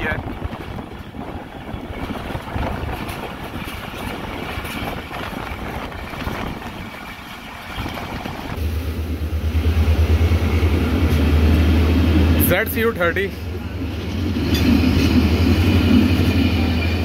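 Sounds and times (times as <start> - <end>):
wind buffeting microphone: 0.0 - 8.6
train wheels and air rushing: 0.0 - 17.0.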